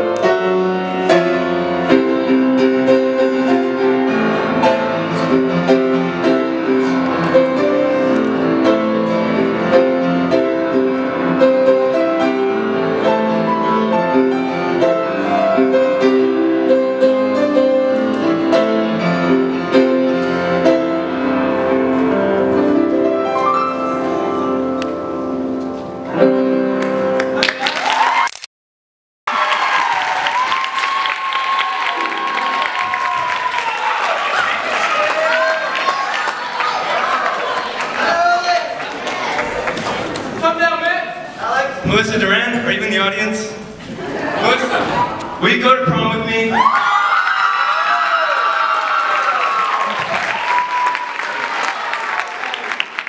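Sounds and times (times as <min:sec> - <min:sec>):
solo piano playing: 0:00.0 - 0:27.4, 0:31.9 - 0:33.5.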